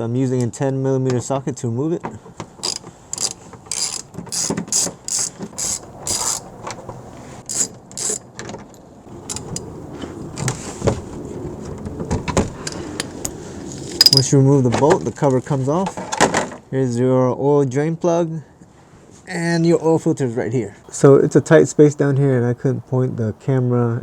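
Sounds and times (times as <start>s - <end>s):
ratchet clicking: 2.6s - 6.5s, 7.4s - 8.2s, 9.2s - 9.7s, 14.0s - 14.3s.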